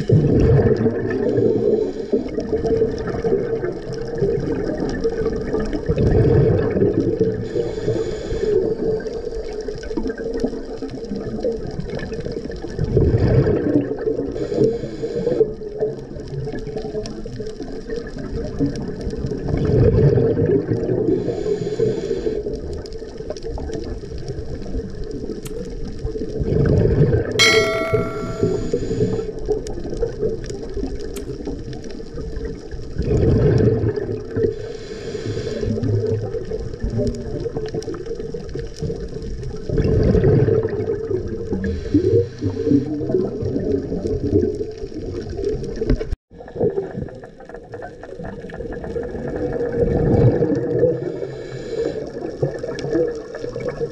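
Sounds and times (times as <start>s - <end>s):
rush of exhaled bubbles: 0.0s - 9.1s, 10.1s - 14.6s, 19.3s - 22.0s, 32.9s - 34.6s, 39.4s - 53.9s
regulator hiss on inhale: 1.4s - 2.6s, 7.4s - 9.0s, 14.4s - 15.5s, 21.2s - 22.5s, 34.6s - 35.8s, 41.6s - 42.9s, 51.1s - 52.3s
short bright chime: 27.4s - 28.8s.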